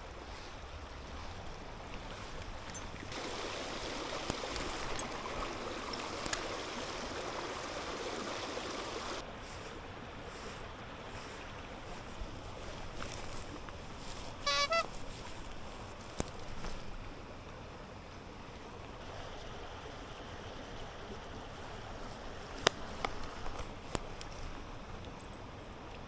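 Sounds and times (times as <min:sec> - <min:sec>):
stream water rushing: 0:00.0 - 0:26.0
two-part chirp: 0:14.5 - 0:14.9
light clicks: 0:15.5 - 0:16.9.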